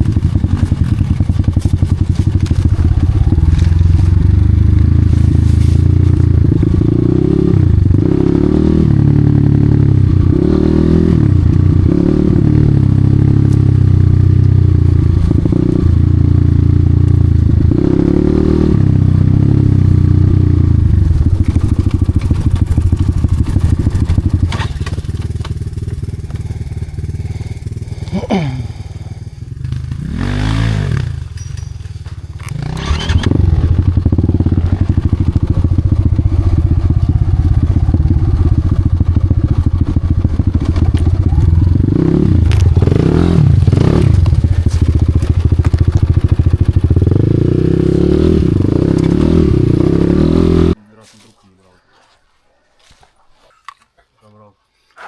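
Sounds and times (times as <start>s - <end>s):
clatter from ground: 0.0s - 4.4s, 21.2s - 26.8s, 31.0s - 35.9s, 39.3s - 41.8s, 42.4s - 47.0s
motorcycle engine revving: 0.0s - 50.8s.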